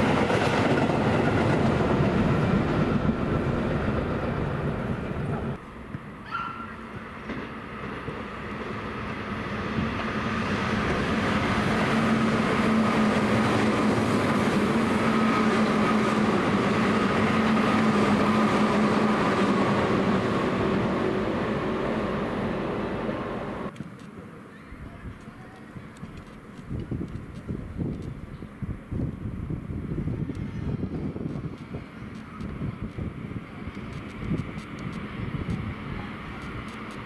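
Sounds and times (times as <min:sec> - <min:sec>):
electric train rail noise: 0:00.0 - 0:24.5, 0:25.1 - 0:37.0
train motor hum: 0:06.9 - 0:23.7, 0:29.7 - 0:37.0.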